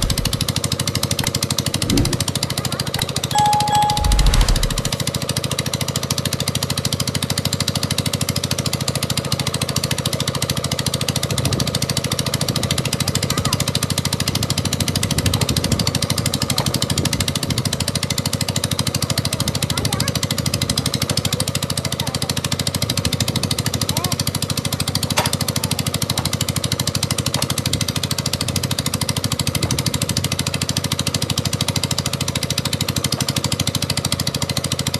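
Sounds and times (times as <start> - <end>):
construction machine pulsing: 0.0 - 0.5, 3.3 - 5.0.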